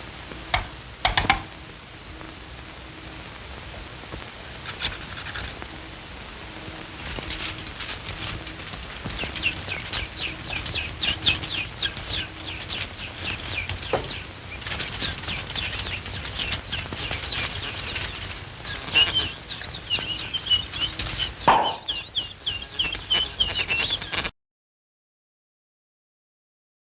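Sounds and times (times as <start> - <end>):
film hiss: 0.0 - 24.3
high falling bird chirps: 7.0 - 24.3.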